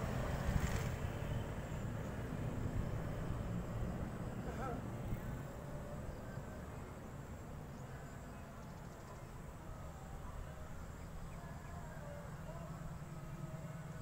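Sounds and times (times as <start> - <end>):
faint train rumble: 0.0 - 14.0
faint bird chirps: 4.4 - 9.4.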